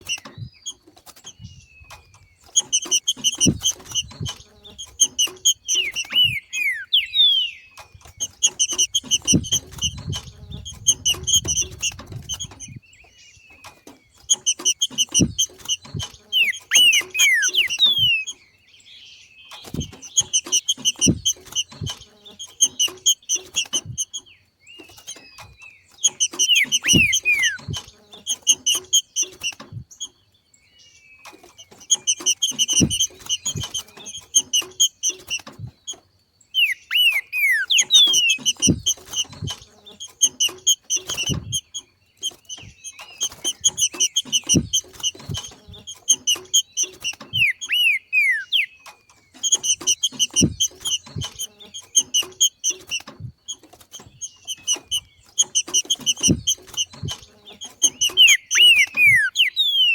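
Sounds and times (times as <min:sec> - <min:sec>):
bird chattering call: 0:02.4 - 0:12.8, 0:14.3 - 0:18.4, 0:25.9 - 0:29.6, 0:36.6 - 0:53.0, 0:54.2 - 0:59.9
low thumps: 0:08.0 - 0:12.8.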